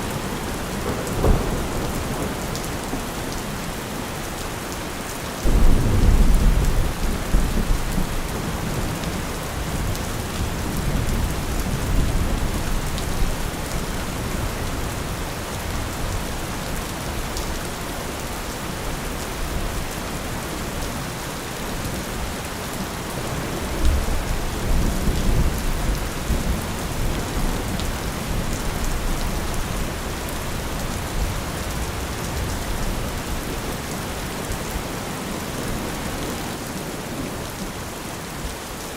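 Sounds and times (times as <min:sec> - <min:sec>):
thunder rolling: 0:00.0 - 0:04.1, 0:05.4 - 0:13.5, 0:23.1 - 0:29.9
steady rain: 0:00.0 - 0:38.9.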